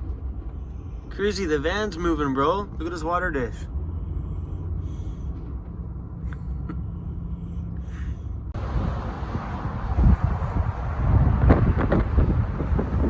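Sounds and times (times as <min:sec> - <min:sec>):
storm wind buffeting van: 0:00.0 - 0:13.0.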